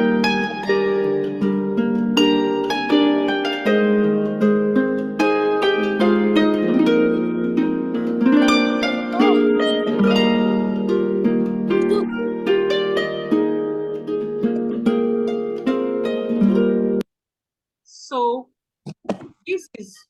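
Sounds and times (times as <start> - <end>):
plucked harp melody: 0.0 - 17.0.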